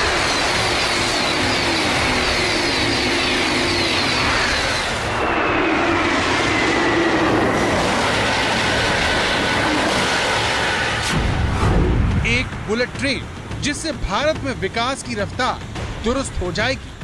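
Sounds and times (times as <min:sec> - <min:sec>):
falling whine: 0:00.0 - 0:13.5
train rushing past: 0:00.0 - 0:17.0.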